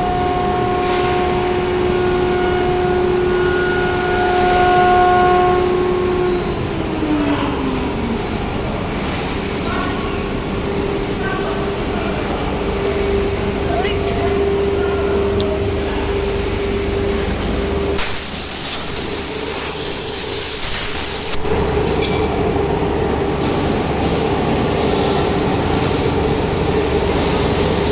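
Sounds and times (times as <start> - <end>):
cnc router whine: 0.0 - 18.0
loud hiss of air: 12.5 - 13.6, 18.0 - 22.3, 23.4 - 27.9.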